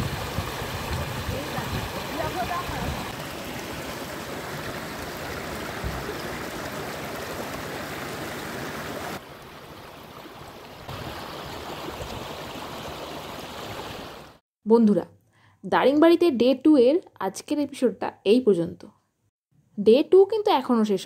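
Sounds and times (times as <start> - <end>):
stream water flowing: 0.0 - 14.4.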